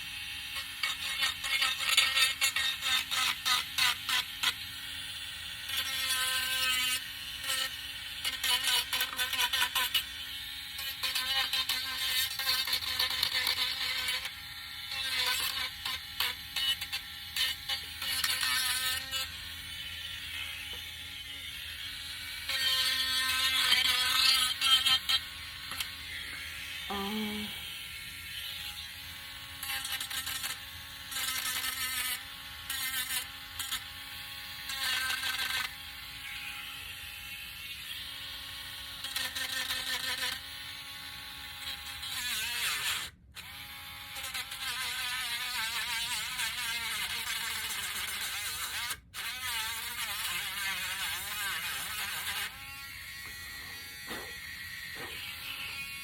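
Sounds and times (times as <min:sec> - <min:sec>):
sander rasping on wood: 0:00.0 - 0:34.0, 0:41.6 - 0:56.0
electric sander buzzing: 0:49.6 - 0:56.0.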